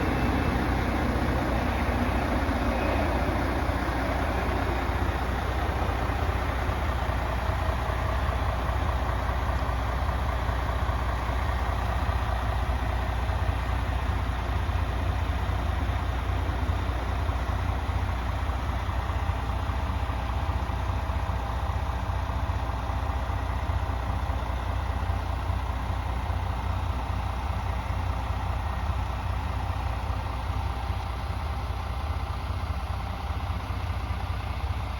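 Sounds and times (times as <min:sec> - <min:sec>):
diesel truck engine idling: 0:00.0 - 0:34.9.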